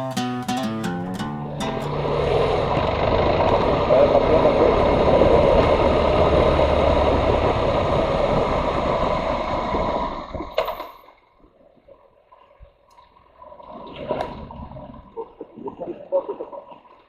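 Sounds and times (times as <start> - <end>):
road noise: 0.8 - 11.0
motorcycle engine running: 1.3 - 10.2.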